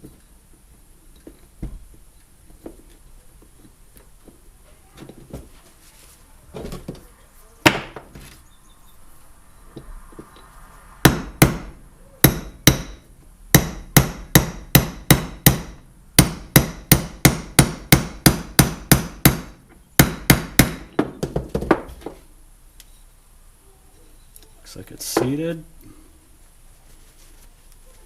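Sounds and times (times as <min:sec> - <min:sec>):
hammer tapping metal: 0:11.0 - 0:21.1.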